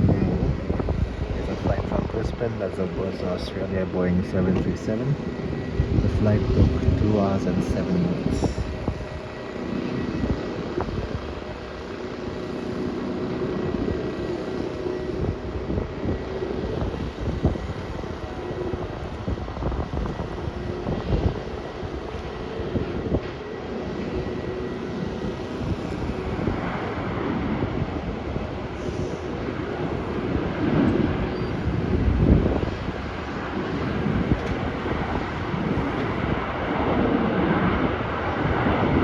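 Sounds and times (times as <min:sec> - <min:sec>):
faint jet whine: 0:00.0 - 0:39.0
jet engines rumbling: 0:00.0 - 0:39.0.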